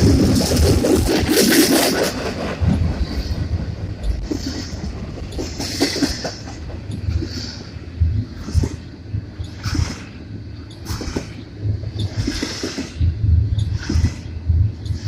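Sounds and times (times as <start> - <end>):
freight train wheels clattering: 0.0 - 15.0.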